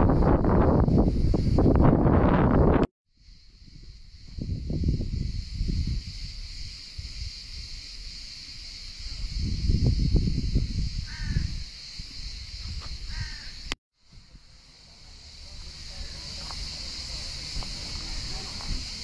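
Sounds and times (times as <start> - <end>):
wind gusting on microphone: 0.0 - 14.7, 15.6 - 19.0
steady high hiss: 3.2 - 19.0
bird calling: 12.8 - 13.7.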